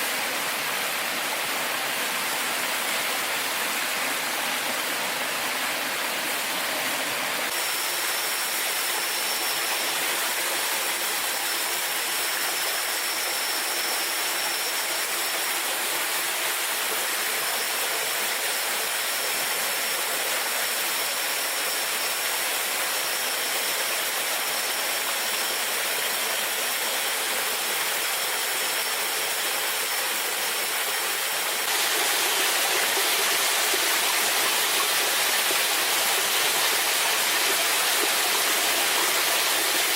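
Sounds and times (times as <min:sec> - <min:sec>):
waterfall rushing: 0:30.6 - 0:39.9.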